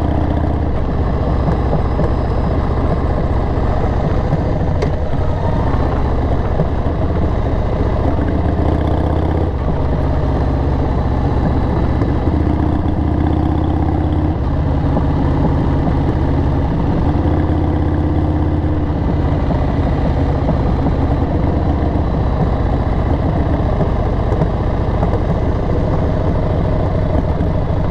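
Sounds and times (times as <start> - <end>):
motorcycle engine idling: 0.0 - 27.9.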